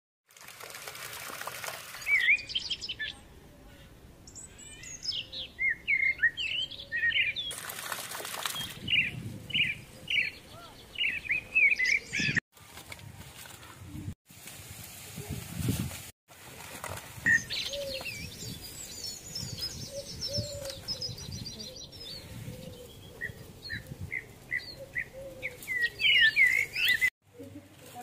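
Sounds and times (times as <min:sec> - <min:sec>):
small birds chirping: 0:02.0 - 0:07.6, 0:08.5 - 0:12.4, 0:17.3 - 0:28.0.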